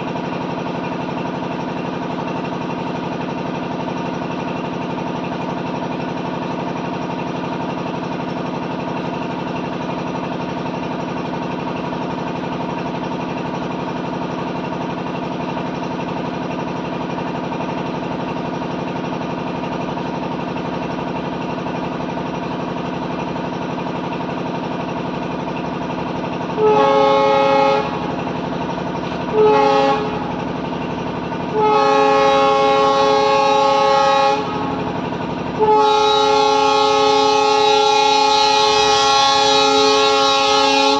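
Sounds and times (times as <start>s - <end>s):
locomotive engine hum: 0.0s - 40.9s
locomotive horn blasts: 26.6s - 28.1s, 29.3s - 30.4s, 31.5s - 34.9s, 35.6s - 40.9s.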